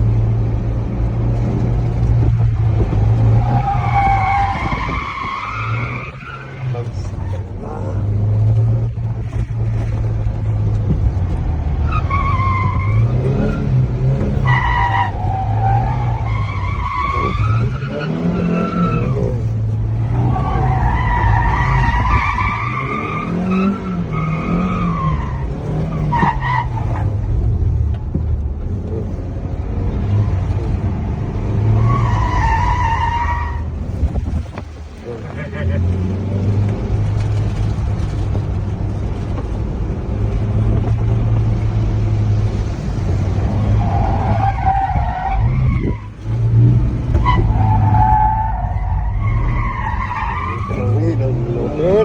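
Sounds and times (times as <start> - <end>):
tyres squealing: 11.9 - 27.1, 31.6 - 33.7, 43.5 - 52.0.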